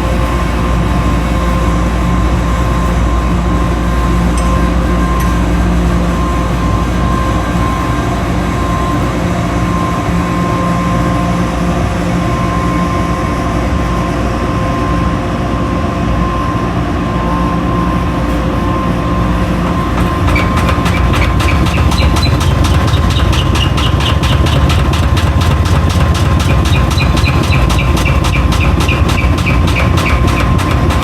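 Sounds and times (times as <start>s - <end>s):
washing machine running: 0.0s - 31.0s
fast regular ticking: 19.7s - 31.0s.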